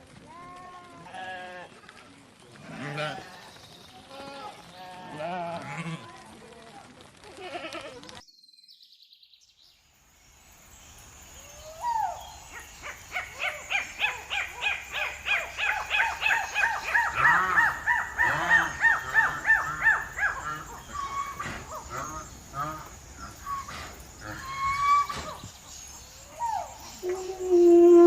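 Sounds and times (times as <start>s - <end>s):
bird chirping: 8.3s - 28.0s.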